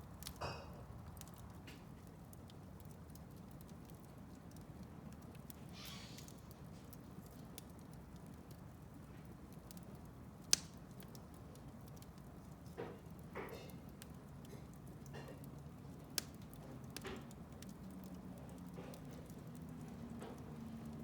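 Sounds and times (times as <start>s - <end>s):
wood fire crackling: 0.0s - 21.0s
fire hissing: 5.5s - 7.1s.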